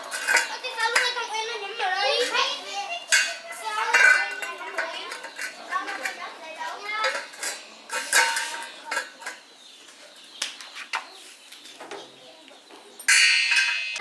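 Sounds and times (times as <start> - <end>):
metal tools clinking: 0.0 - 9.8, 13.0 - 14.0.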